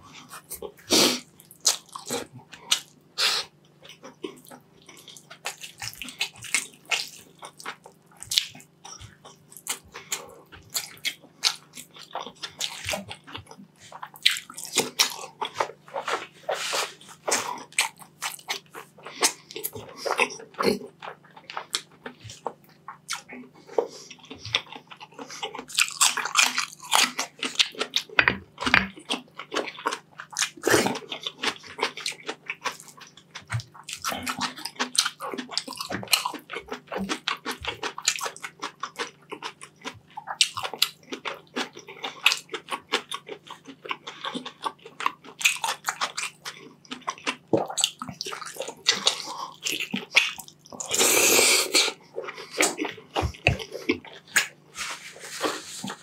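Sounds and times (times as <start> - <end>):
wet chewing and biting: 3.8 - 56.0.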